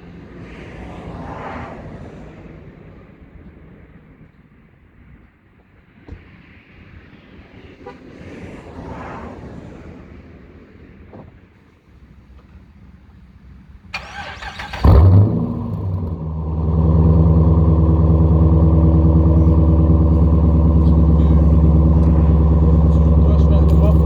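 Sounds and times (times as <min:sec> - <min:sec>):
car engine revving then idling: 0:14.0 - 0:24.0.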